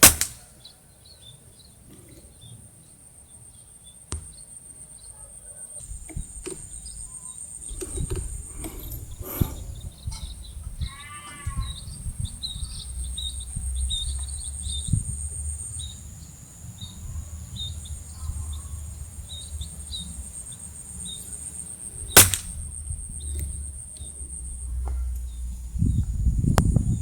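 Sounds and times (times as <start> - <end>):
air rifle shot: 0.0 - 0.5, 22.2 - 22.6
small birds chirping: 0.0 - 27.0.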